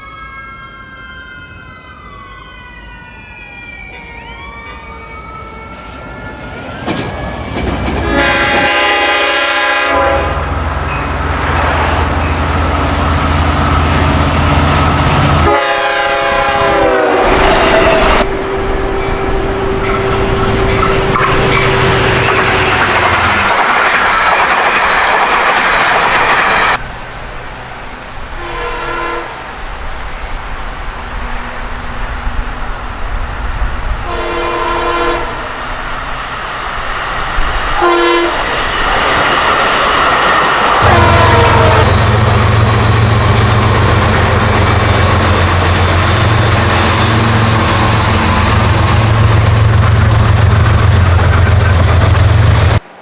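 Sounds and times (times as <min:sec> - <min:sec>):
train passing at speed: 0:00.0 - 0:53.0
short horn blasts: 0:08.0 - 0:10.5, 0:14.3 - 0:22.5, 0:28.4 - 0:29.4, 0:34.1 - 0:35.4, 0:37.8 - 0:38.4, 0:40.8 - 0:42.0
train horn: 0:08.0 - 0:23.5, 0:28.2 - 0:29.5, 0:33.9 - 0:35.6, 0:37.7 - 0:38.5, 0:40.7 - 0:52.0.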